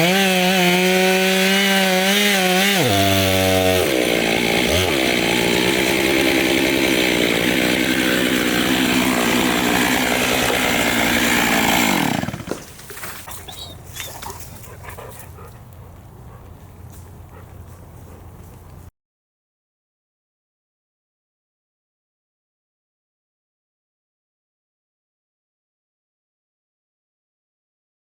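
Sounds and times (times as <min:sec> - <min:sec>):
chainsaw cutting wood: 0:00.0 - 0:13.3.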